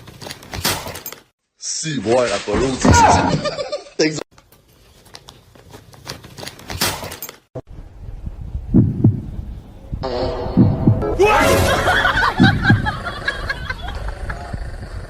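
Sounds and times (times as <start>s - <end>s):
low double thumps: 7.7s - 13.1s.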